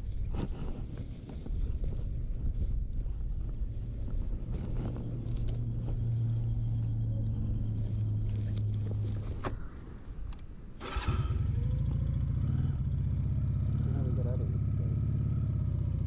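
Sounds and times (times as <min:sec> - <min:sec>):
low engine hum: 0:00.0 - 0:16.0
motorcycle engine starting and idling: 0:03.8 - 0:16.0
sharp clicks: 0:08.5 - 0:11.0.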